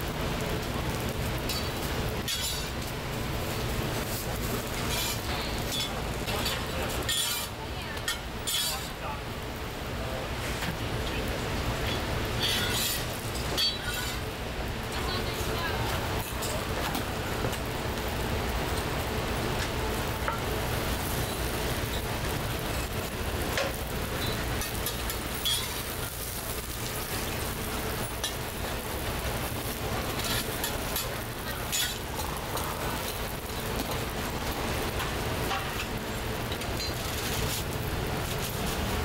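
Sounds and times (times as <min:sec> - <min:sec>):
oil sizzling on a griddle: 0:00.0 - 0:39.0.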